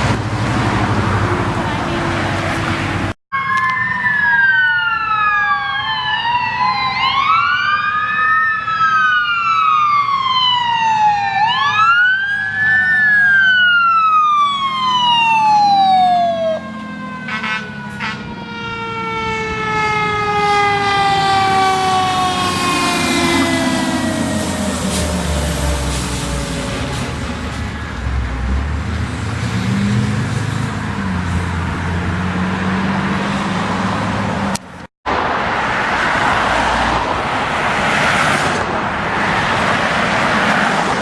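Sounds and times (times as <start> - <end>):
traffic rumble: 0.0 - 41.0
emergency vehicle siren wailing: 3.3 - 29.2.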